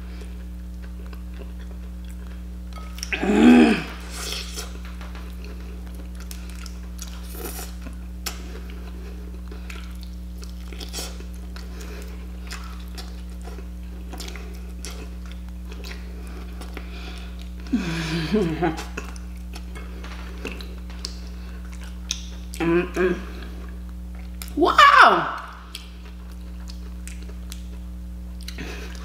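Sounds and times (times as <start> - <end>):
person chewing: 0.0 - 24.6, 25.4 - 29.0
steady low hum: 0.0 - 29.0
person humming: 3.1 - 4.4, 17.7 - 19.0, 22.6 - 23.5.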